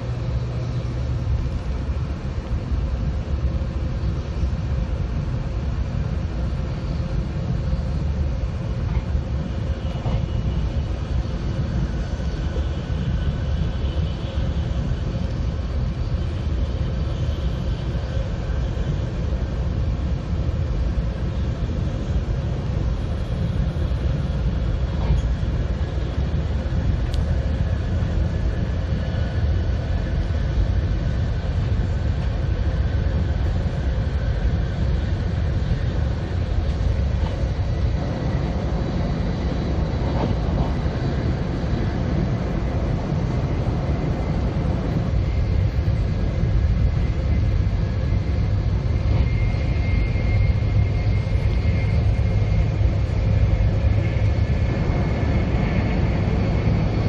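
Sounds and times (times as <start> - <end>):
faint high whine: 0.0 - 57.0
train rumble inside cabin: 0.0 - 57.0.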